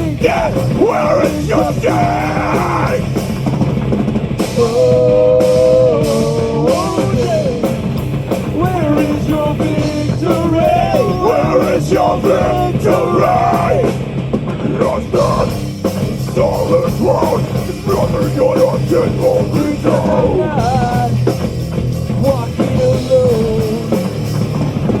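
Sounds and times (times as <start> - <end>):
heavy metal band playing: 0.0 - 25.0.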